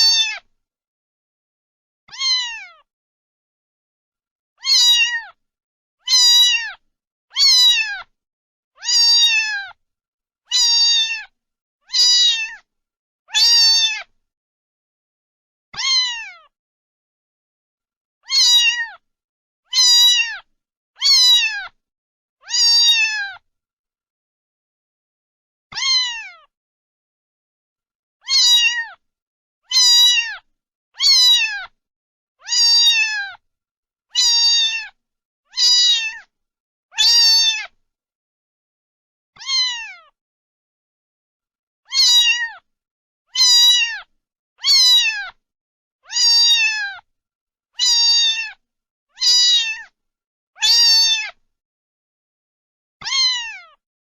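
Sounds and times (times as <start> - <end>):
cat meowing: 0.0 - 0.5, 2.1 - 2.9, 4.6 - 5.4, 6.0 - 8.1, 8.8 - 9.8, 10.5 - 11.3, 11.9 - 12.7, 13.3 - 14.1, 15.8 - 16.5, 18.2 - 19.0, 19.7 - 21.8, 22.4 - 23.4, 25.7 - 26.5, 28.2 - 29.0, 29.7 - 31.8, 32.4 - 33.4, 34.2 - 36.3, 36.9 - 37.8, 39.4 - 40.2, 41.9 - 42.7, 43.3 - 45.4, 46.0 - 47.0, 47.8 - 48.6, 49.2 - 50.0, 50.6 - 51.4, 53.0 - 53.8.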